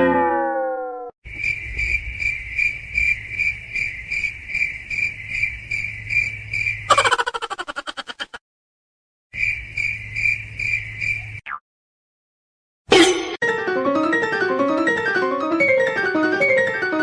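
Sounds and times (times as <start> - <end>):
loud falling tone: 0.0 - 1.1
crickets chirping: 1.3 - 8.3, 9.4 - 11.4.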